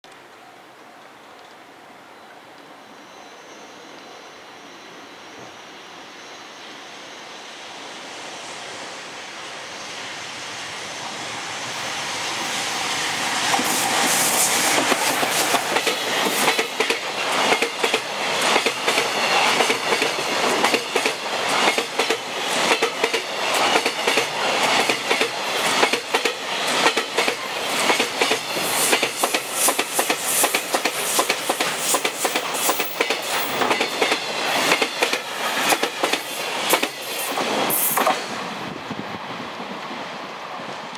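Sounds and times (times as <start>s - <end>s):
electric locomotive passing: 0.3s - 40.9s
wheels clacking over rail joints: 13.4s - 38.4s.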